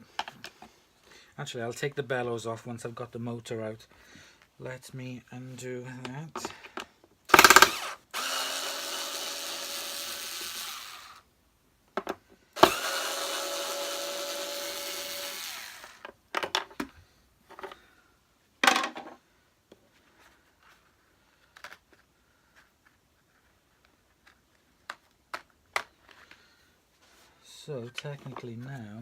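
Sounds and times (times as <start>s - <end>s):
power screwdriver whirring: 7.3s - 11.2s, 12.6s - 16.1s.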